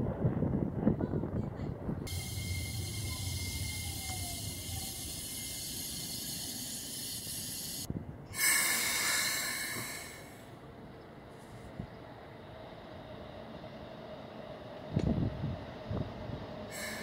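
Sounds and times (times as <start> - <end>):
electric train rumbling: 0.0 - 17.0
falling motor whine: 2.1 - 7.9
burst of hiss: 2.1 - 10.4, 16.7 - 17.0.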